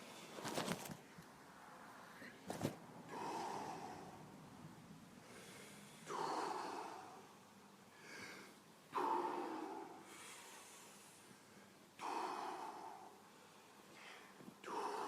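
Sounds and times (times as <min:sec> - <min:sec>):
deep forceful breathing: 0:03.0 - 0:15.0.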